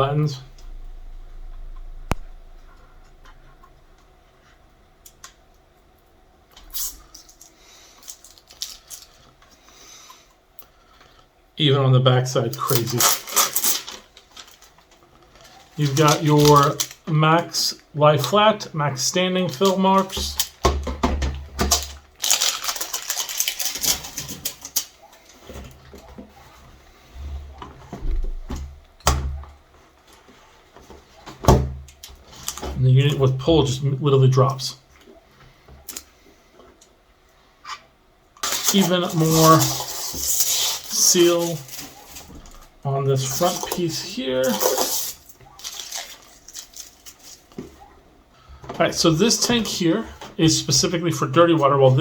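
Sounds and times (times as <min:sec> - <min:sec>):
low thumps: 0:00.0 - 0:04.2
plastic wrap rustling: 0:06.7 - 0:09.4, 0:12.6 - 0:17.6, 0:18.2 - 0:20.7, 0:21.4 - 0:28.5, 0:32.0 - 0:33.4, 0:38.4 - 0:47.9
plastic crackling and clicking: 0:12.6 - 0:17.1, 0:21.6 - 0:26.3, 0:38.4 - 0:47.8.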